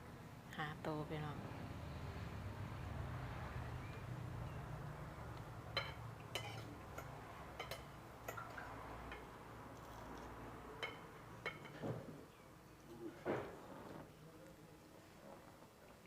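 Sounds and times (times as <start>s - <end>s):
cutlery clinking on plates: 5.7s - 13.6s.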